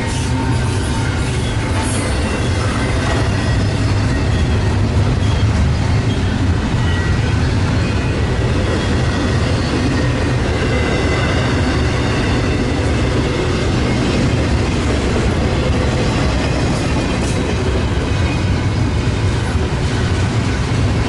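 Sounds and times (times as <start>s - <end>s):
high wheel squeal: 0.0s - 14.2s
train wheels rumbling on rails: 0.0s - 21.0s.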